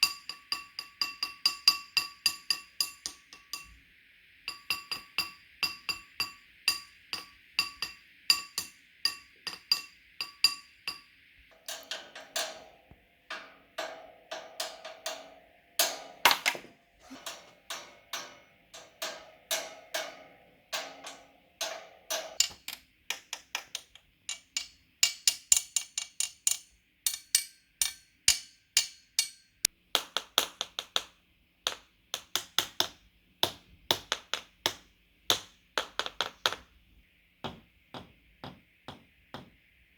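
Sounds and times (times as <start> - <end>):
objects tapped and knocked: 6.7 - 26.6, 29.9 - 36.7, 37.4 - 39.7.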